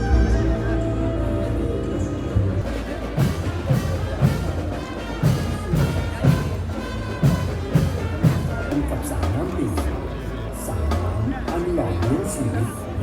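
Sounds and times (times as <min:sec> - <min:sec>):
parade music: 0:00.0 - 0:12.2
heavy drum striking: 0:02.6 - 0:10.0.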